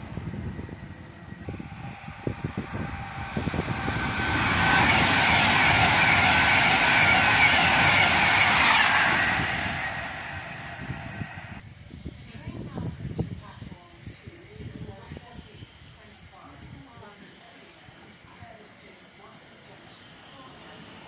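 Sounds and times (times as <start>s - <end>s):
train passing with rushing roar: 0.0s - 12.2s, 15.6s - 21.0s.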